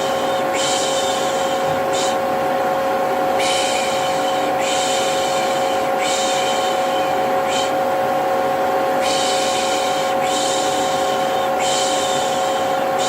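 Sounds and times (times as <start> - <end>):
vacuum cleaner humming: 0.0 - 13.0
long hissing shush: 9.0 - 13.0.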